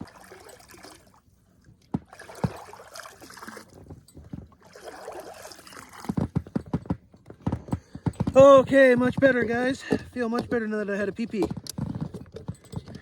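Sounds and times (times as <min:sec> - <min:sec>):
stream of urine splashing: 0:00.0 - 0:01.2, 0:02.0 - 0:03.8, 0:04.6 - 0:06.2.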